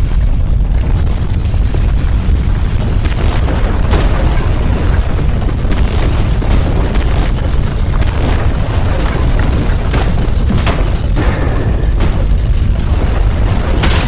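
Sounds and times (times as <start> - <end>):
deep earthquake rumble: 0.0 - 14.0
crashes and knocks: 2.8 - 14.0.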